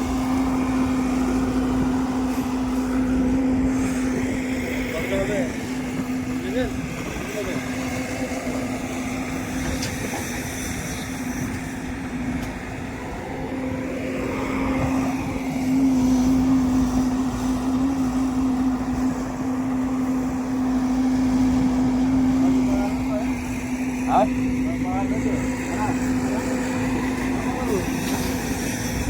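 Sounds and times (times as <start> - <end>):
heavy diesel engine running: 0.0 - 29.0.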